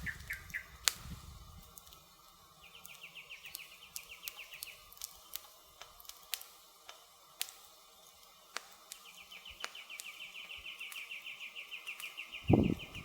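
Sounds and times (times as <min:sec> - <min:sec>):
insect trilling: 0:00.0 - 0:00.8
campfire wood crackling: 0:00.0 - 0:13.0.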